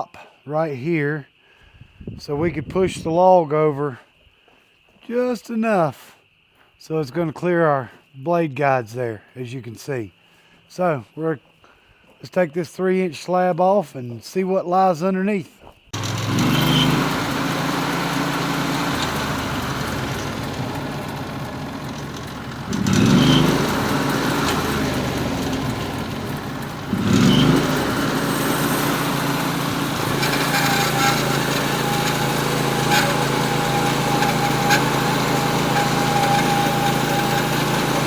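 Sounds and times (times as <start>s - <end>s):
saw blade high whine: 16.0s - 38.0s
sawmill engine revving: 16.0s - 38.0s.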